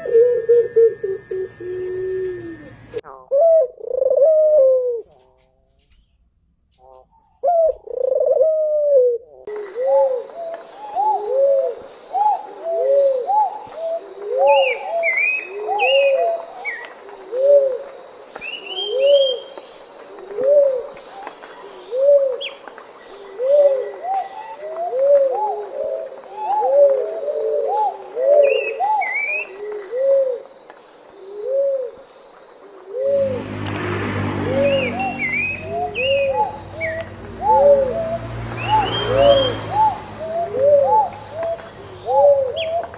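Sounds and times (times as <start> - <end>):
doves cooing: 0.0 - 5.6, 6.8 - 17.9, 20.1 - 22.5, 23.1 - 30.5, 32.9 - 42.9
small birds chirping: 34.6 - 42.9.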